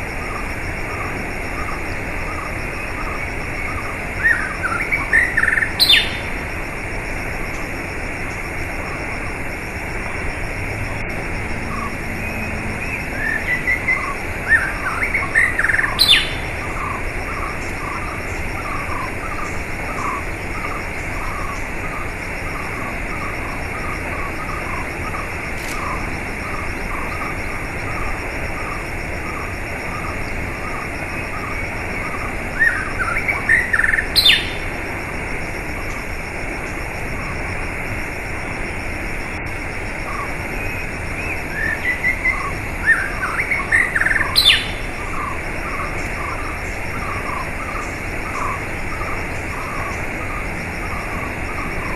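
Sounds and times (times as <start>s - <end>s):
songbirds chirping: 0.0s - 51.9s
bird song with rising note: 11.4s - 17.0s.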